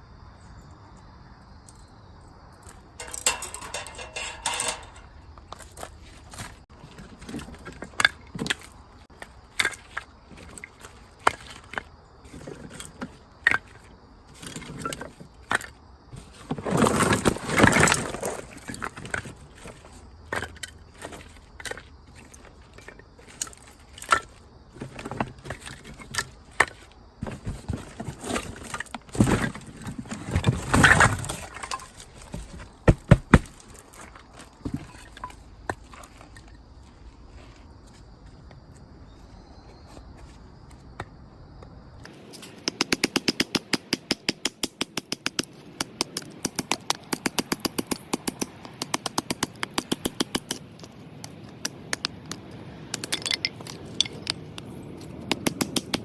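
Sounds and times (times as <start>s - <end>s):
objects clicking and knocking: 2.6s - 36.6s, 42.0s - 56.0s
scraping or rustling: 3.0s - 38.1s.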